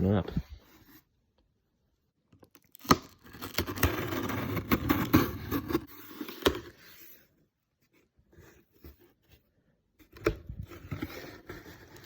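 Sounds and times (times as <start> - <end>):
cardboard box rustling: 7.9 - 12.0.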